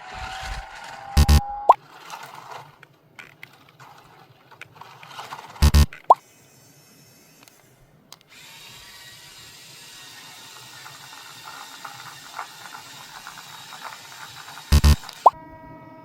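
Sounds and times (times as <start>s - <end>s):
clicks and rattles: 1.2s - 6.2s, 10.6s - 15.4s
small electric motor whirring: 5.1s - 15.4s.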